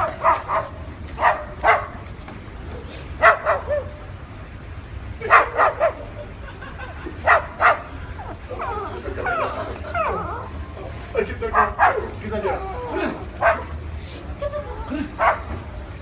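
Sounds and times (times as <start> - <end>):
cockatoo barking like a dog: 0.0 - 2.0, 3.2 - 4.0, 5.2 - 6.2, 7.2 - 10.6, 11.5 - 13.8, 15.2 - 15.6.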